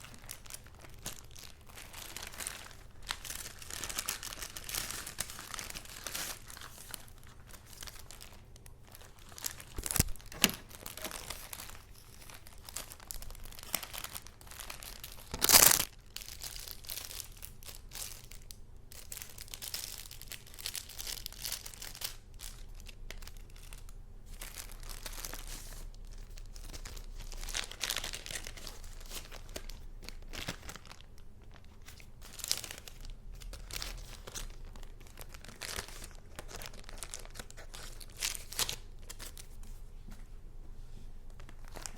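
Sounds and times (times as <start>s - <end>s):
paper rustling and crinkling: 0.0s - 17.2s, 24.3s - 40.4s, 41.3s - 41.9s
sharp paper crackles: 0.0s - 17.4s.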